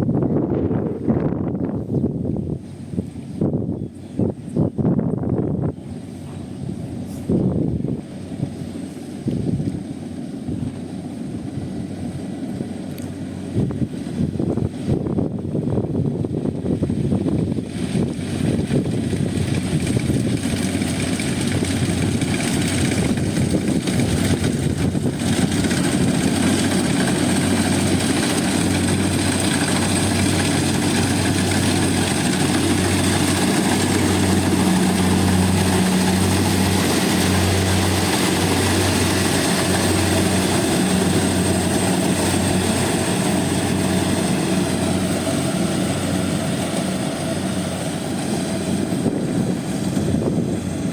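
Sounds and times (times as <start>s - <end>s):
combine harvester engine drone: 0.0s - 50.9s
dense mechanical noise: 12.8s - 50.9s.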